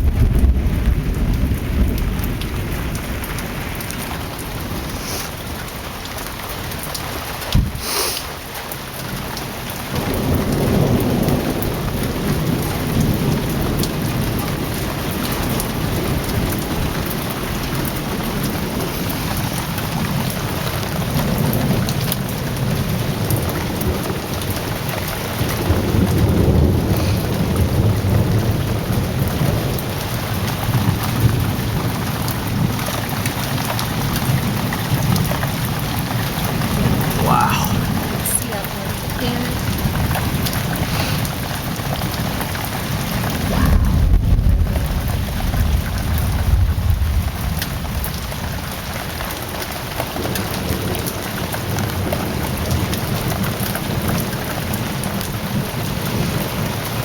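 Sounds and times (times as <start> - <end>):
rolling thunder: 0.0 - 5.8, 9.9 - 37.2, 38.9 - 49.2
heavy rain pouring: 0.0 - 57.0.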